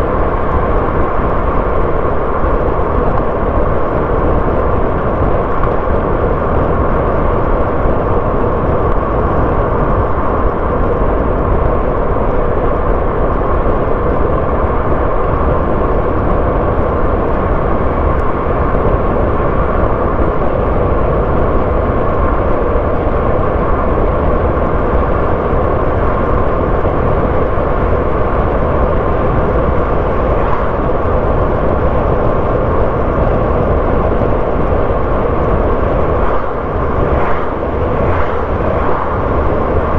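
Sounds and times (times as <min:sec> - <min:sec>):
tyre road noise: 0:00.0 - 0:39.9
car engine: 0:35.0 - 0:39.9.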